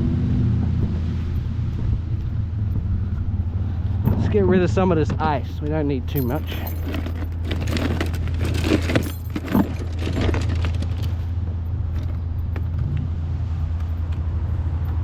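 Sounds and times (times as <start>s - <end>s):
low engine hum: 0.0s - 15.0s
ice cubes clattering: 6.2s - 11.0s.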